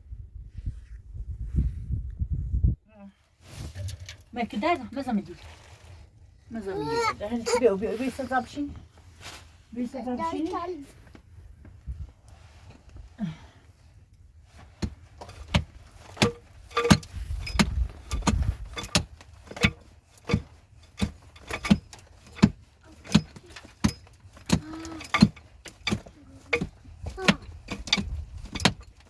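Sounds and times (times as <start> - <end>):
digging tool striking ground: 14.8 - 29.0.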